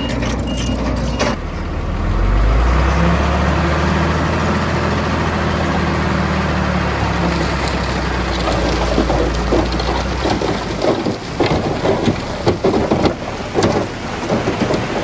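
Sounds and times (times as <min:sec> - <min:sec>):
reversing alarm beeps: 0:00.0 - 0:01.4
diesel engine running: 0:00.0 - 0:15.0.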